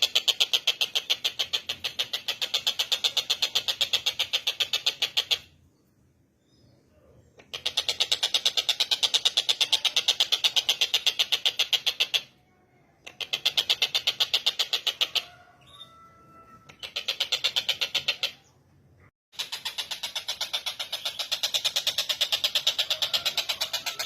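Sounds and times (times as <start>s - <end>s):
kingfisher rattling call: 7.4s - 12.3s, 19.4s - 24.0s.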